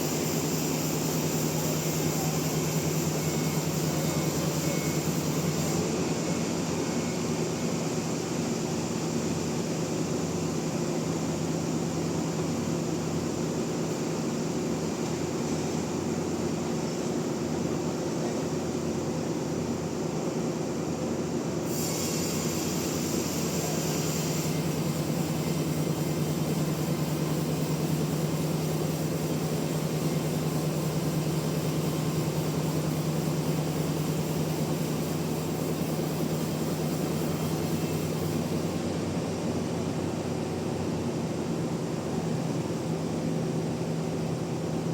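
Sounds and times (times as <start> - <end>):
high hiss: 0.0 - 6.0, 21.6 - 38.9
sawmill machinery motor hum: 0.0 - 44.9.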